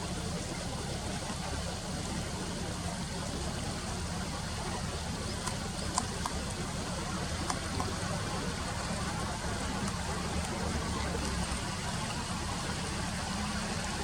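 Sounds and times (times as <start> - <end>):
flowing river water: 0.0 - 14.0
faint clicks: 5.2 - 12.7.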